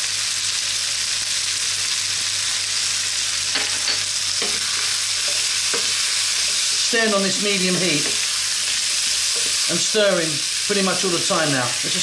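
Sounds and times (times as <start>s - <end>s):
vegetables sizzling in frying pan: 0.0s - 12.0s.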